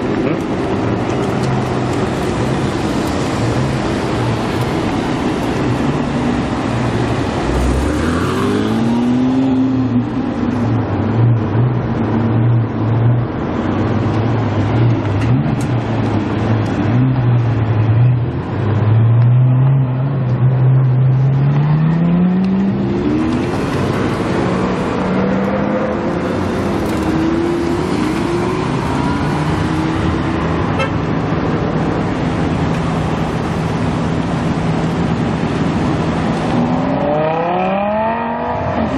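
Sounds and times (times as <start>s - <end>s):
car engine revving: 34.2s - 38.9s
car accelerating away: 36.4s - 38.9s.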